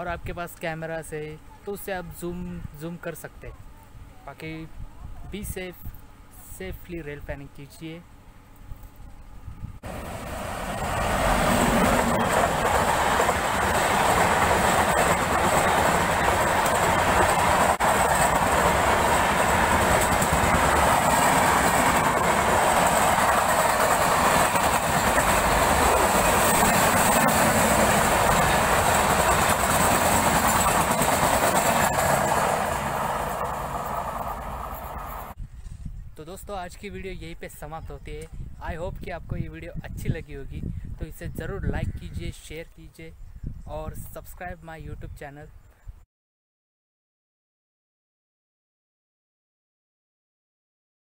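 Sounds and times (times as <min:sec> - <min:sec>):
train wheels rushing on rails: 0:09.8 - 0:35.4.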